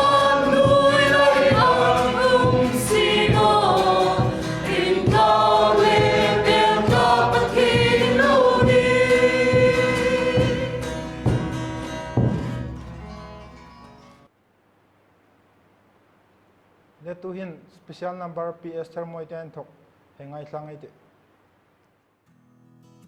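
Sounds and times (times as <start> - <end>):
group singing worship song: 0.0 - 11.6
band with drum beat: 0.0 - 12.7.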